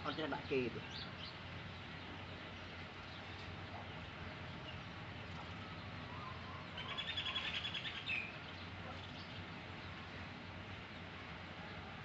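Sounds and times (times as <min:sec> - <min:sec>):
bird trilling: 0:06.1 - 0:08.4.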